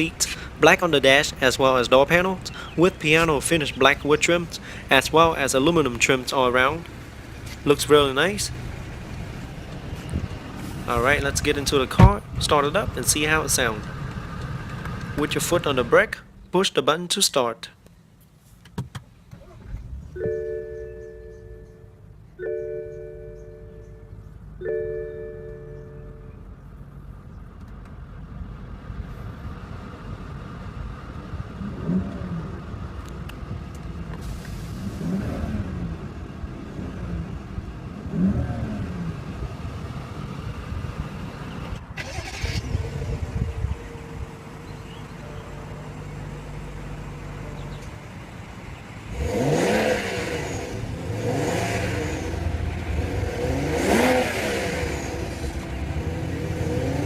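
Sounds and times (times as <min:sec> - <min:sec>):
car engine revving: 0:29.5 - 0:57.0.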